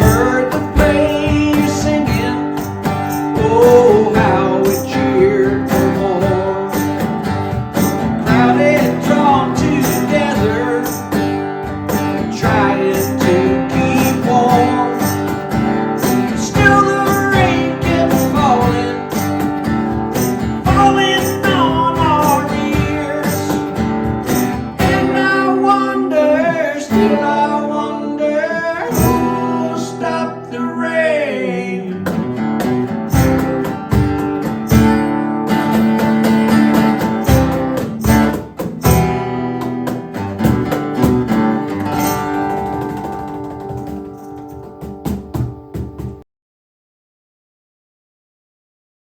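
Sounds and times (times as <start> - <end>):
person singing: 0.0 - 7.0, 8.2 - 11.2, 12.2 - 15.3, 16.0 - 19.3, 20.6 - 23.7, 24.8 - 32.8
acoustic guitar strumming: 0.0 - 46.2.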